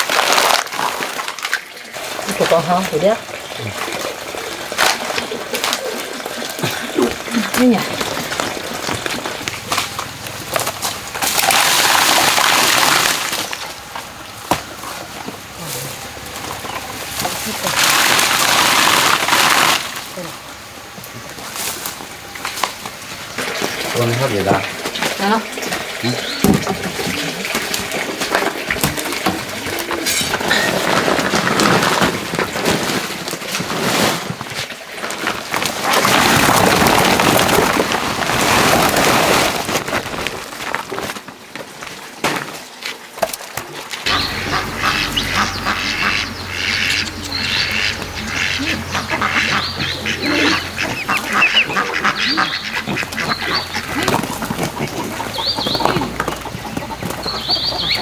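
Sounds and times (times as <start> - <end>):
ducks quacking: 44.0 - 58.0.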